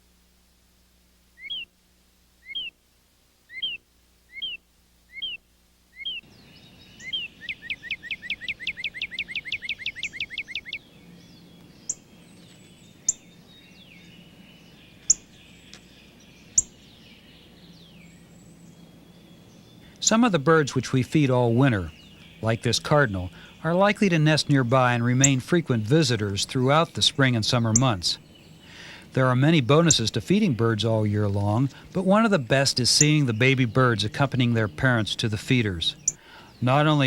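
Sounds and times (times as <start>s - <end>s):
bird chip notes: 1.4s - 1.7s, 2.4s - 2.7s, 3.5s - 15.8s, 18.8s - 37.0s
bird trill: 1.4s - 1.7s, 2.4s - 2.8s, 3.5s - 37.0s
bird whistles: 1.4s - 1.7s, 2.4s - 2.7s, 3.5s - 5.4s, 6.0s - 6.2s, 7.0s - 10.8s
faint hiss: 28.6s - 29.3s.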